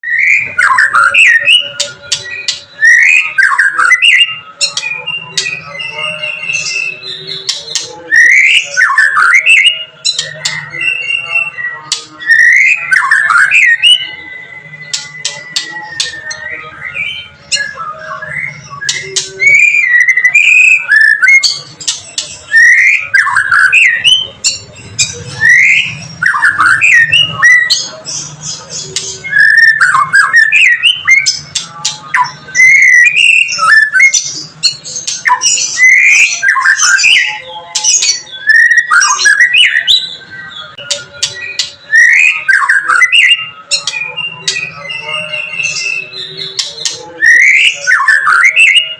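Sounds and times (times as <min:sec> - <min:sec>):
bird singing whistled notes: 0:00.0 - 0:48.9
bird clicking notes: 0:14.9 - 0:16.2, 0:31.2 - 0:32.0.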